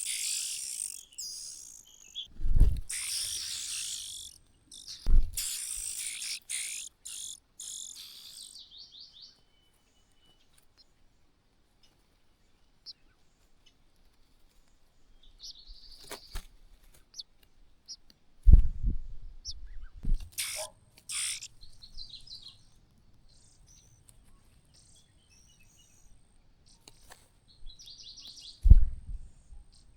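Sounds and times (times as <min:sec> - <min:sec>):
harsh bird calls: 0:00.0 - 0:09.4, 0:19.4 - 0:26.9
nestlings chirping and trilling: 0:00.0 - 0:10.8, 0:14.6 - 0:18.1, 0:19.4 - 0:29.9.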